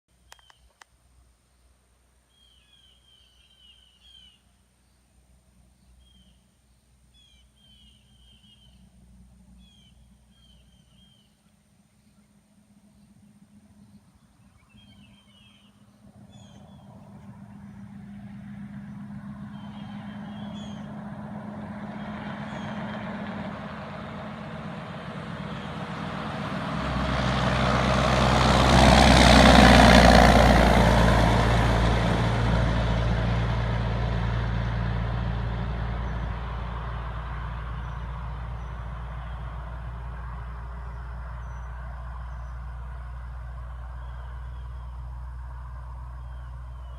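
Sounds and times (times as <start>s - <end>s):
birds chirping faintly: 0.1s - 23.1s, 35.7s - 46.9s
truck passing: 12.2s - 46.9s.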